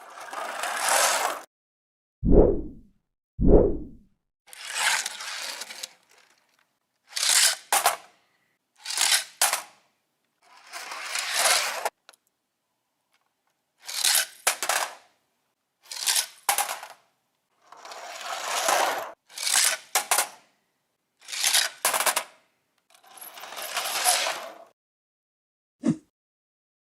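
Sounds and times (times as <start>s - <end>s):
toy cars rattling down plastic slide: 0.0s - 1.5s, 4.5s - 8.1s, 8.8s - 9.8s, 10.4s - 12.0s, 13.8s - 15.2s, 15.8s - 20.5s, 21.2s - 24.7s.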